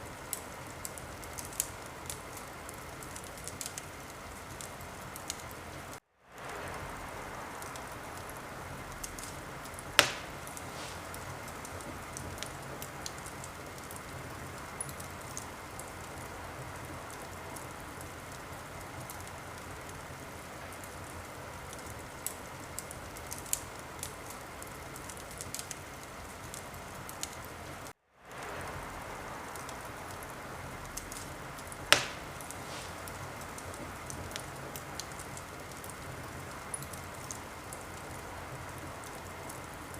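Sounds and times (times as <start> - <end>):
wood fire hissing and crackling: 0.0 - 39.9
loud sharp fire pops: 9.0 - 14.1, 30.8 - 36.0.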